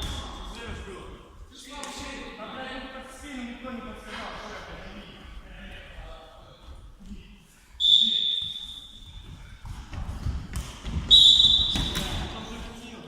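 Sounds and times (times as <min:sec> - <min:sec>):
referee's whistle blast: 0:07.8 - 0:08.8, 0:11.1 - 0:12.0
ball and feet thudding on court: 0:09.2 - 0:12.4.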